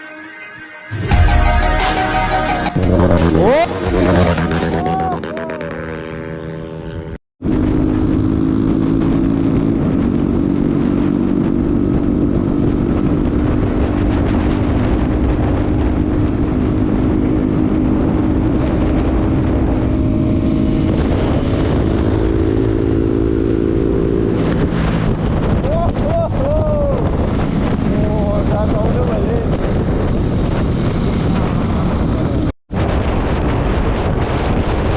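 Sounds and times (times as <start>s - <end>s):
road and wind noise: 2.5s - 34.9s
vehicle engine running: 2.7s - 10.2s.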